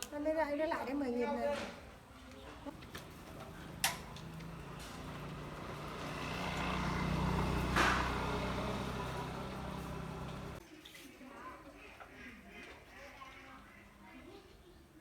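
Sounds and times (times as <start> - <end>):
vehicle engine running: 2.7 - 10.6.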